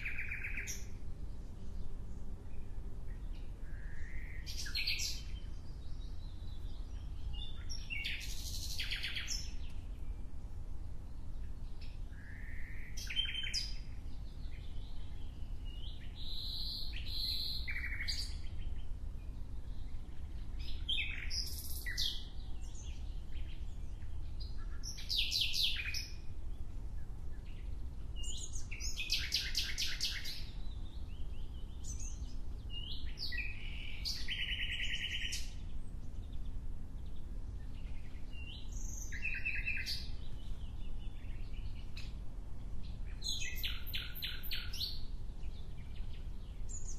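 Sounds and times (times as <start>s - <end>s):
songbird trilling: 0.0s - 1.0s, 3.2s - 9.9s, 11.7s - 18.9s, 19.7s - 26.2s, 27.4s - 35.6s, 37.1s - 42.2s, 43.1s - 46.9s
steady low rumble: 0.0s - 13.0s.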